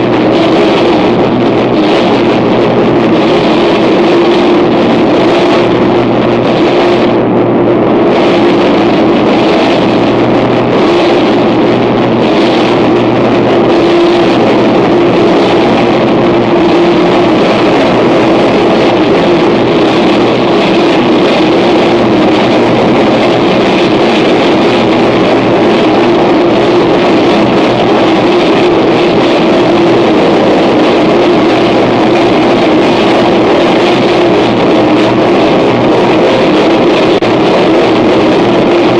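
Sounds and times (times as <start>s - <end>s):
distorted noise music: 0.0s - 38.9s
low drone: 0.0s - 38.9s.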